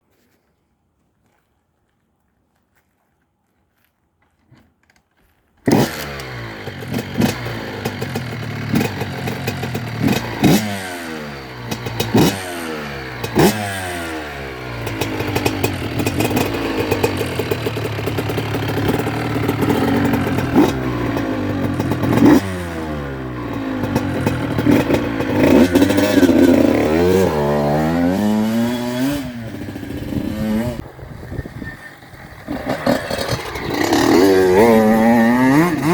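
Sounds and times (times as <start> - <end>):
two-stroke engine revving: 5.7 - 35.9.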